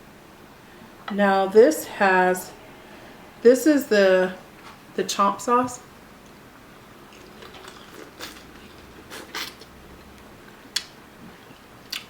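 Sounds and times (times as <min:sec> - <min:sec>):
soft chewing: 0:07.1 - 0:12.0
wet mouth clicks: 0:07.2 - 0:09.8.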